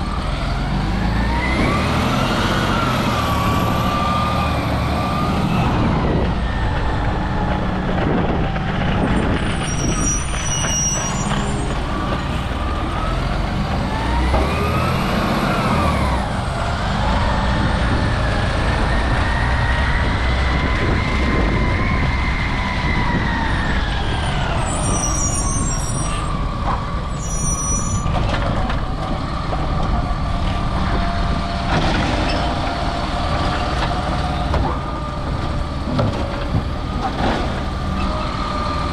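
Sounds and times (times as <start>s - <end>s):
garbage truck engine running: 0.0s - 21.6s
short high squeaks: 9.5s - 11.8s, 27.2s - 28.1s.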